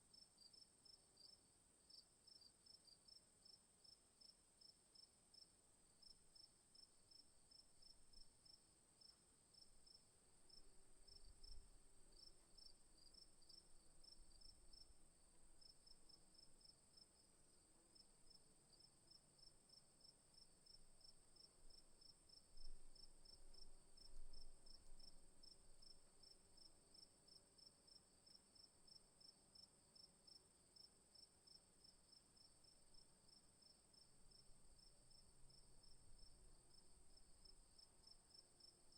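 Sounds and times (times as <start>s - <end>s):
insect chirping: 6.4s - 15.0s.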